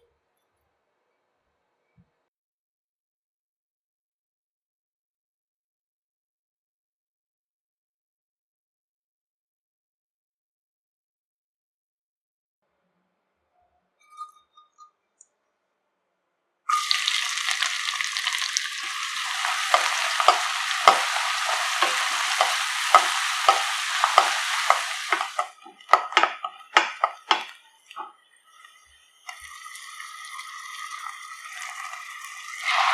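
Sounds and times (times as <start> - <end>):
food sizzling in hot oil: 16.7 - 32.9
spatula knocking on a pan: 18.8 - 27.5
spatula scraping a pan: 18.8 - 28.8, 31.7 - 32.9.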